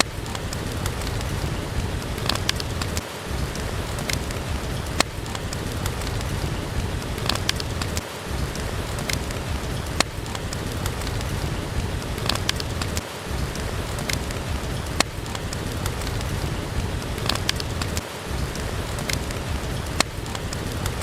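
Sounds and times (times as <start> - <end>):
steady rain hissing: 0.0 - 21.0
wood fire crackling and popping: 0.0 - 21.0.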